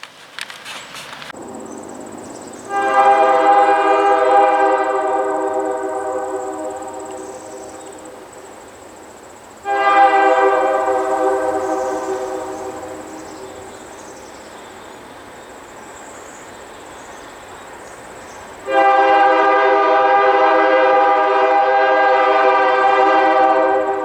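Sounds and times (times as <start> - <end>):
locomotive horn blowing: 2.6 - 8.2, 9.6 - 13.8, 18.6 - 24.0.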